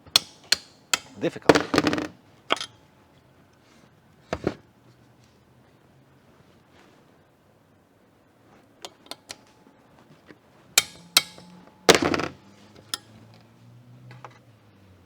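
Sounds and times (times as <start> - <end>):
metal hand tools clinking: 0.0 - 2.8, 8.8 - 9.6, 10.8 - 14.4
sharp metal strikes ringing: 0.1 - 1.7, 10.8 - 13.1.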